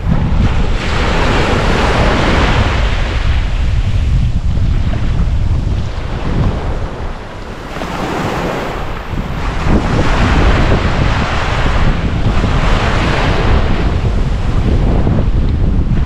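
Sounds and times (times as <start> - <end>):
ocean waves breaking: 0.0 - 16.0
wind buffeting microphone: 0.0 - 16.0.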